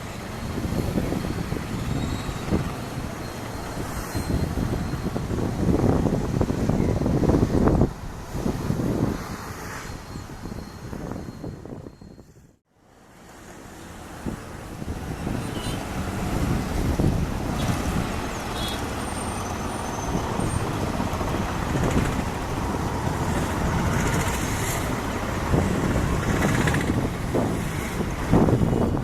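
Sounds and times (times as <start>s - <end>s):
jet engines roaring: 15.2s - 28.9s.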